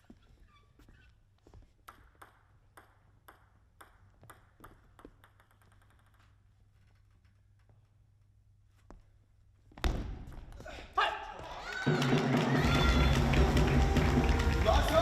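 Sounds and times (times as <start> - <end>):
faint low hall hum: 0.0 - 15.0
table tennis ball hits: 1.8 - 6.3.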